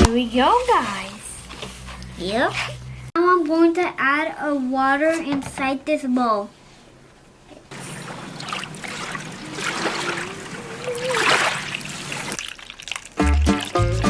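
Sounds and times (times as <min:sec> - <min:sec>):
water pouring into a bowl: 0:07.7 - 0:13.9
music: 0:13.2 - 0:14.0.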